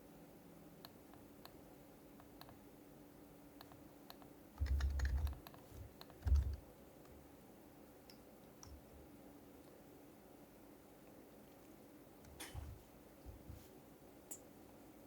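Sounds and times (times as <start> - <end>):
keyboard typing thuds: 4.6 - 6.6.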